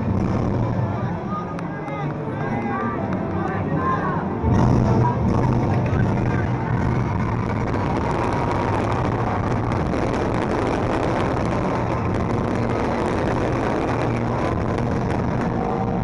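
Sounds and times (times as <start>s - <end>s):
fireworks bursting and crackling: 0.0s - 0.8s, 4.5s - 16.0s.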